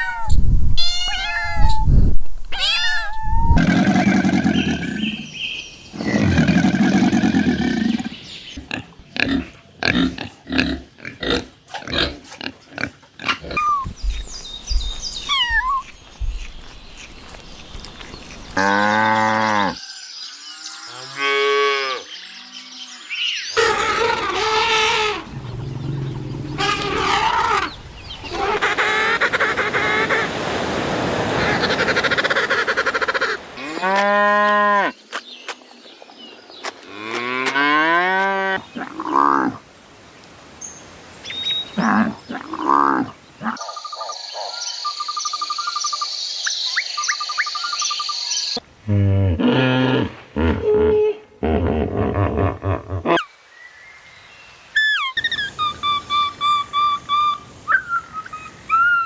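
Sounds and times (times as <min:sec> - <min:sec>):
cattle mooing: 0:24.4 - 0:28.4.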